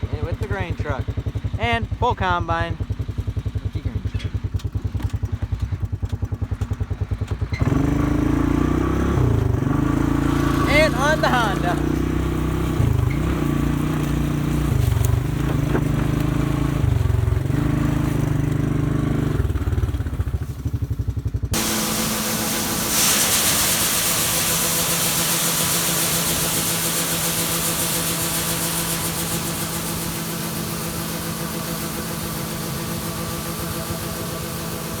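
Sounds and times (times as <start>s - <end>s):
engine revving: 7.0s - 35.0s
hissing machine drone: 9.8s - 17.2s, 21.6s - 35.0s.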